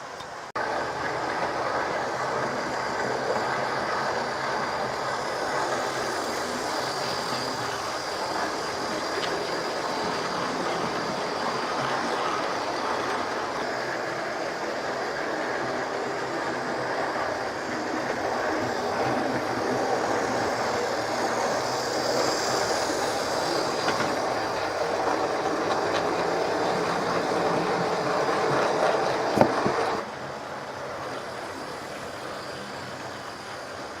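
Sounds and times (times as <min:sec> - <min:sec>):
model train motor whine: 0:00.0 - 0:34.0
wheels rumbling on rails: 0:00.0 - 0:34.0.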